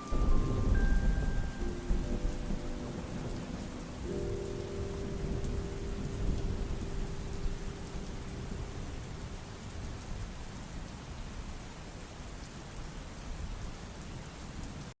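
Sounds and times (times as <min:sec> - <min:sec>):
rain hissing: 0:00.0 - 0:15.0
low rumble: 0:00.1 - 0:09.8.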